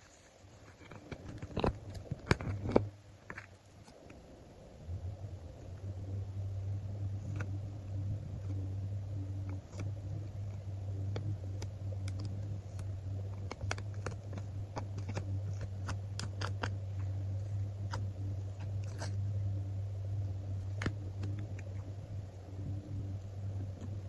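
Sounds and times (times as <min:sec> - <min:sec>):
steady low hum: 0:00.0 - 0:24.0
stickers being peeled off: 0:07.1 - 0:19.2.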